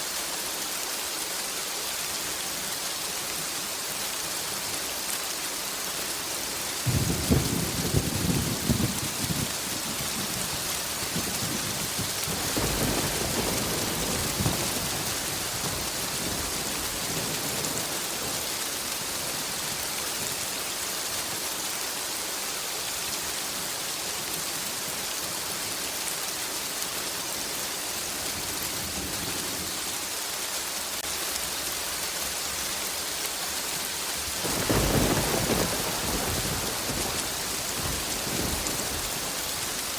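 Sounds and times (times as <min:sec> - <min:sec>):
heavy rain hissing: 0:00.0 - 0:39.9
thunder rumbling: 0:06.9 - 0:19.6, 0:34.4 - 0:39.9.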